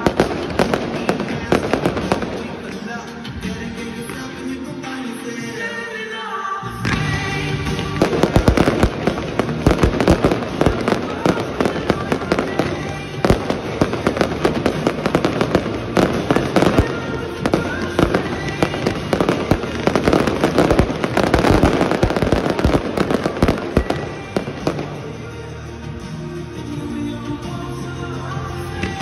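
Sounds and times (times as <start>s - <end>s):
fireworks bangs and crackles: 0.0s - 4.5s, 6.8s - 26.7s, 28.6s - 29.0s
music playing: 0.0s - 29.0s.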